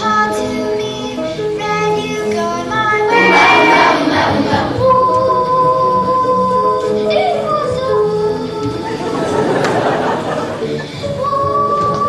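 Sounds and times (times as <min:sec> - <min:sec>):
musical accompaniment: 0:00.0 - 0:12.0
children singing: 0:03.0 - 0:07.5.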